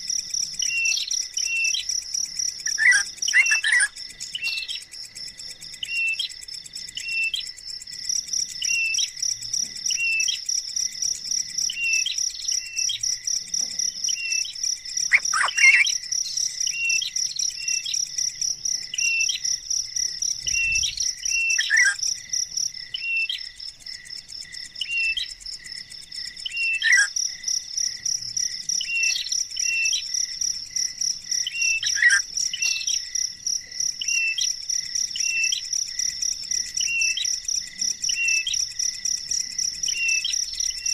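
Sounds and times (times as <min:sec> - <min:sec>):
bird chirping: 0:00.5 - 0:07.7, 0:08.5 - 0:09.2, 0:09.8 - 0:10.5, 0:11.4 - 0:23.6, 0:24.4 - 0:27.2, 0:28.7 - 0:30.1, 0:31.4 - 0:33.2, 0:33.9 - 0:37.4, 0:38.0 - 0:38.8, 0:39.7 - 0:40.9.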